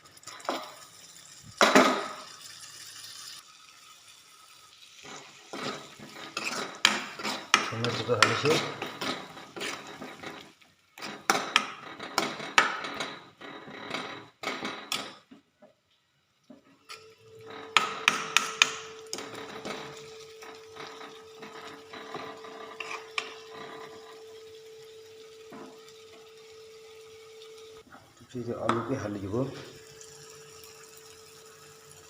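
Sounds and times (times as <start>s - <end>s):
utensil scraping and knocking pan: 5.1s - 15.2s, 17.5s - 24.2s.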